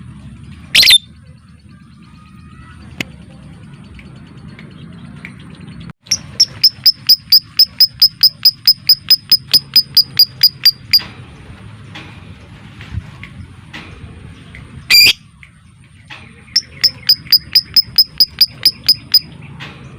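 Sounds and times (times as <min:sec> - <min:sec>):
lovebird chirping rapidly: 0:00.7 - 0:01.1, 0:06.0 - 0:11.0, 0:14.9 - 0:15.2, 0:16.5 - 0:19.3.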